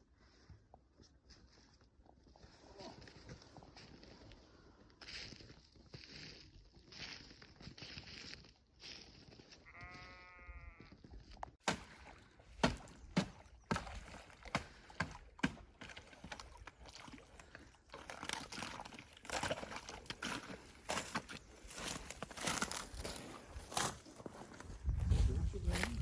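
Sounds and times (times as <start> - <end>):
sheep bleating: 9.6 - 11.0
crunching and rustling: 17.9 - 26.0.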